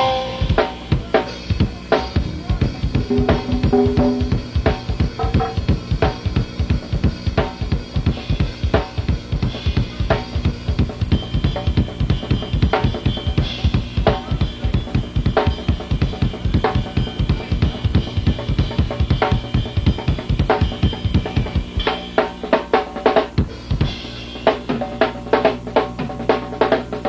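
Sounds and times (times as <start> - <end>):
bass drum pattern: 1.0 - 22.0
low held bass note: 3.1 - 4.5
snare drum hits: 3.1 - 4.5.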